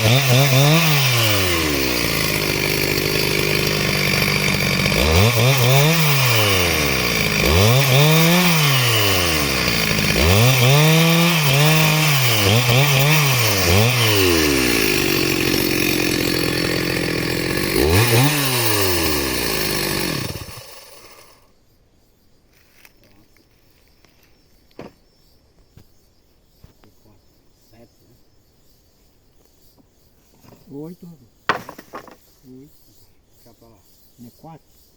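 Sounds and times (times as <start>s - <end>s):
chainsaw revving and idling: 0.0s - 21.4s.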